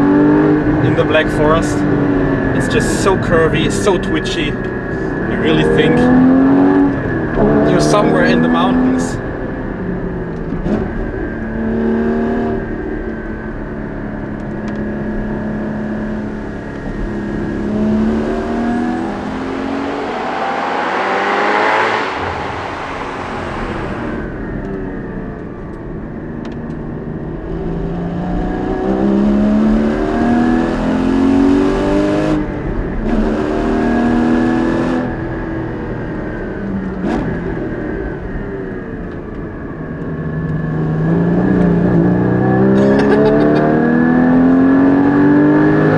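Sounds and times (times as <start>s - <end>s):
sports car engine revving: 0.0s - 39.4s, 40.2s - 45.9s
rushing noise: 15.8s - 25.6s.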